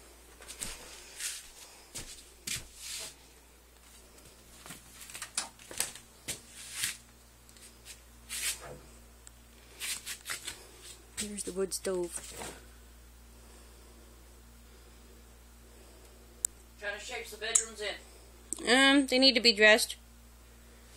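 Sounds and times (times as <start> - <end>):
faint steady hum: 0.0 - 20.9
footsteps: 0.3 - 3.2, 3.8 - 7.0, 9.7 - 12.6.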